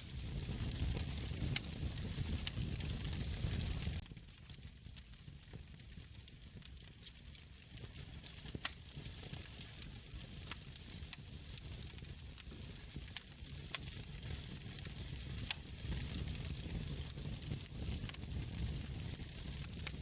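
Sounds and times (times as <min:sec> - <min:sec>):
hiss and rumble of flames: 0:00.0 - 0:20.0
crackles and pops of logs: 0:00.1 - 0:20.0.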